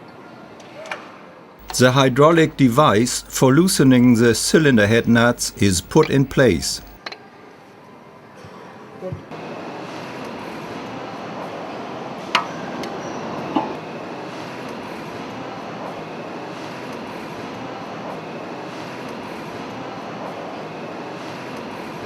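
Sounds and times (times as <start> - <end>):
mechanical background noise: 1.6 - 7.0.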